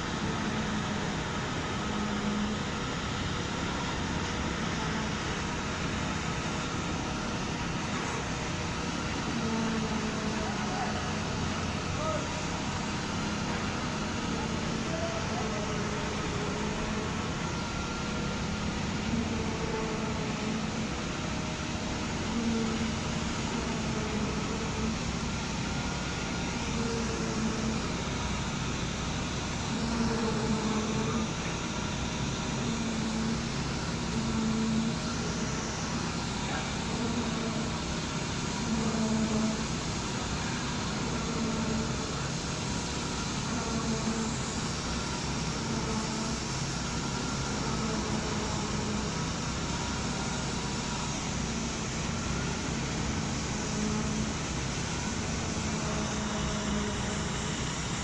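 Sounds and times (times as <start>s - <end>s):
construction machinery humming: 0.0s - 58.0s.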